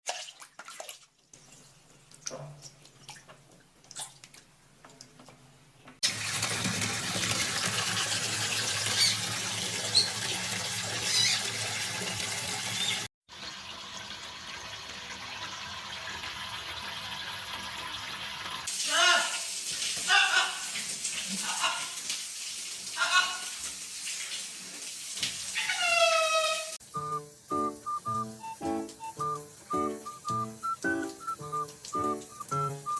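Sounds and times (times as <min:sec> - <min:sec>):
tap water running: 0:06.0 - 0:32.9
parrot chirping: 0:08.9 - 0:09.3, 0:09.9 - 0:10.2, 0:11.0 - 0:11.5, 0:25.6 - 0:32.7.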